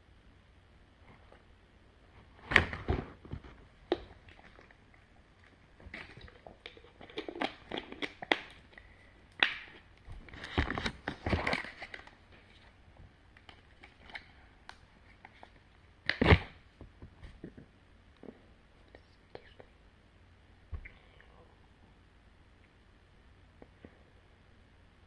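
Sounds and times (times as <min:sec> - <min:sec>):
chewing candy crunching: 0:03.9 - 0:09.8.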